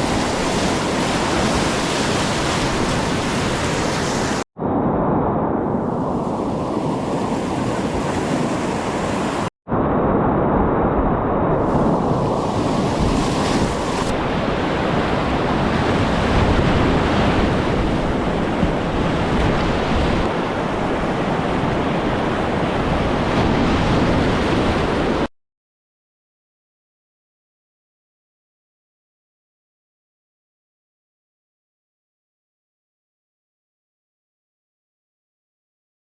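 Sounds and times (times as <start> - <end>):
rushing river whitewater: 0.0 - 4.4, 6.9 - 9.5
wind buffeting microphone: 0.0 - 25.3.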